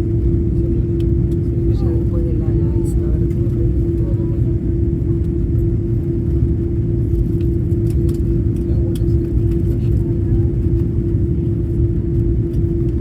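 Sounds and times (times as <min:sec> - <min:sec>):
airliner cabin engine rumble: 0:00.0 - 0:13.0
constant cabin hum: 0:00.0 - 0:13.0.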